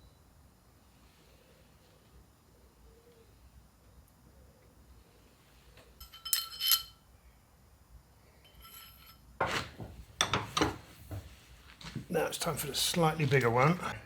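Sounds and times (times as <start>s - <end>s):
metal parts clinking: 6.0s - 7.0s.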